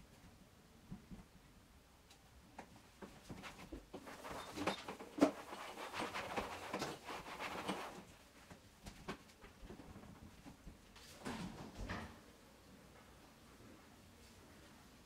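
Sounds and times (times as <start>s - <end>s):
rustling of items being handled: 2.5s - 11.7s.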